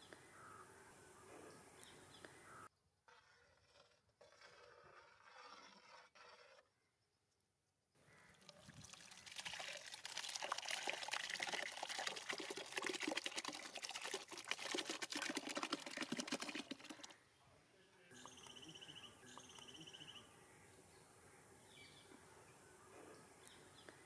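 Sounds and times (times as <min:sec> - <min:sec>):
liquid pouring and trickling: 0:08.3 - 0:17.2.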